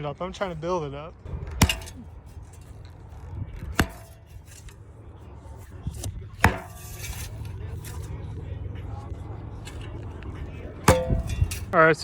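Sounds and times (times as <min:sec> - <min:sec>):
low steady rumble: 0:01.1 - 0:12.0
shovel striking packed dirt: 0:01.4 - 0:02.9, 0:03.5 - 0:04.8, 0:05.6 - 0:08.1, 0:10.8 - 0:11.8.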